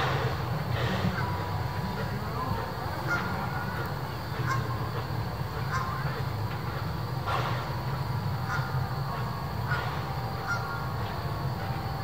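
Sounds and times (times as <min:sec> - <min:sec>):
short calls: 0:00.0 - 0:06.3
train coaches rumbling on rails: 0:00.0 - 0:12.0.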